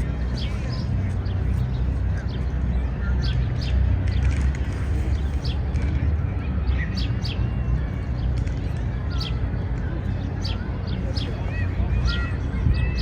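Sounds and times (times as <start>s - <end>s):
city background rumble: 0.0s - 13.0s
small birds chirping: 0.0s - 13.0s.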